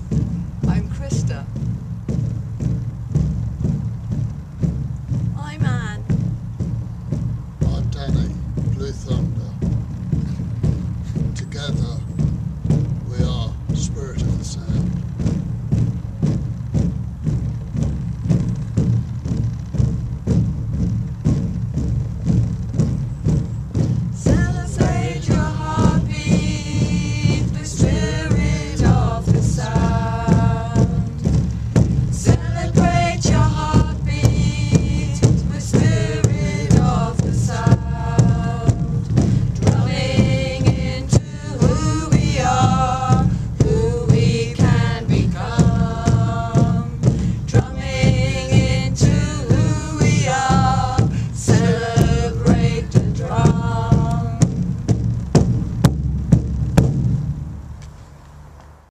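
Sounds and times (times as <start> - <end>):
steady drumbeat: 0.0 - 58.9
chanted singing: 24.2 - 31.4, 32.2 - 54.6.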